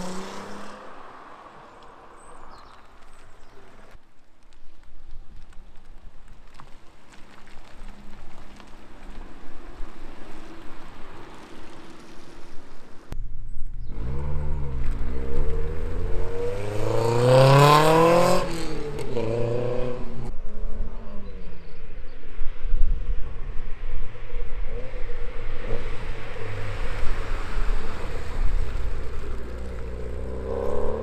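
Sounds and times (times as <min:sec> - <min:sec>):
car engine accelerating: 0:00.0 - 0:04.0, 0:13.7 - 0:21.5, 0:23.3 - 0:31.0.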